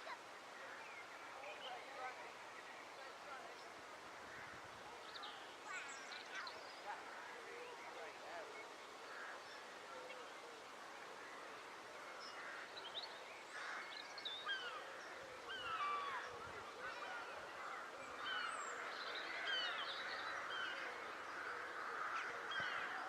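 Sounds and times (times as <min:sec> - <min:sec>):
crows calling: 0:13.5 - 0:14.9.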